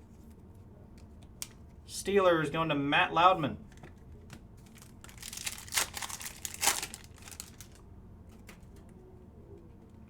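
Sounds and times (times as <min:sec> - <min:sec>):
wrappers crinkling and rustling: 0:04.6 - 0:08.8.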